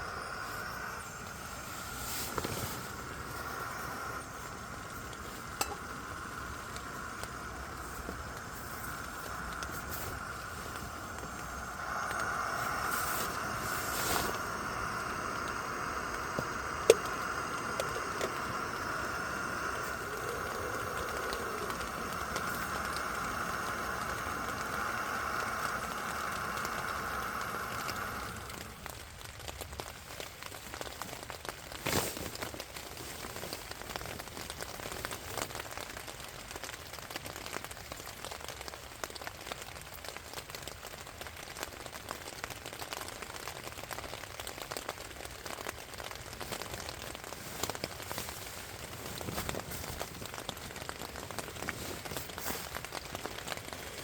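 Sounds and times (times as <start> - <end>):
steady hum: 0.0 - 29.2
rain falling in forest: 0.0 - 54.0.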